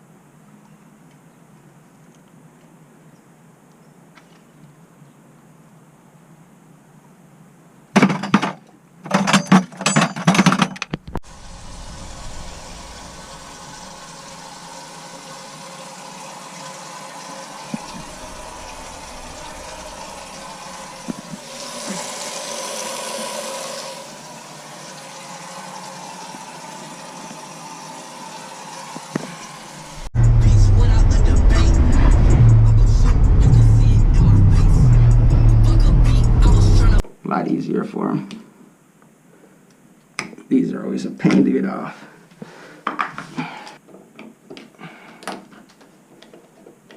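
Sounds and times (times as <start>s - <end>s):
water running: 11.2s - 30.1s.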